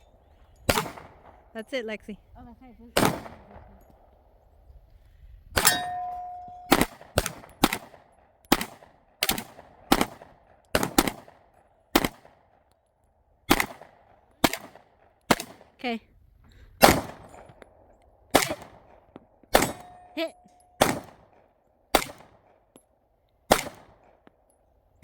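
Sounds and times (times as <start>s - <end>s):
gunshots: 0.7s - 1.4s, 3.0s - 3.8s, 6.6s - 12.3s, 13.5s - 15.7s, 16.8s - 17.5s, 18.3s - 22.5s, 23.5s - 24.0s
steel target ringing ding: 5.6s - 6.8s.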